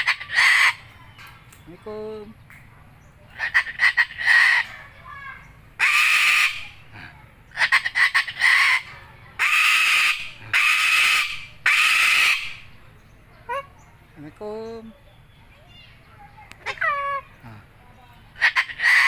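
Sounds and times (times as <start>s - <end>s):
cockatoo raspy screeches: 0.0s - 0.8s, 3.4s - 4.7s, 5.8s - 6.8s, 7.6s - 12.6s, 18.4s - 19.0s
cockatoo stuttering chatter: 0.0s - 1.6s, 3.0s - 12.7s, 16.0s - 19.0s.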